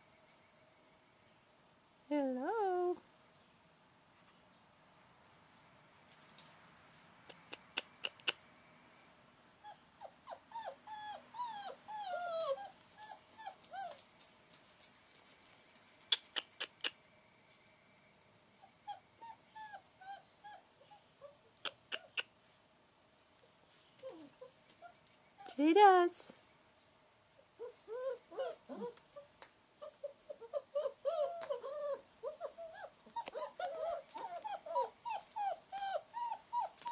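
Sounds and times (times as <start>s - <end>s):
puppy whimpering: 9.6s - 14.0s, 17.9s - 22.2s, 23.3s - 25.6s, 27.6s - 36.9s.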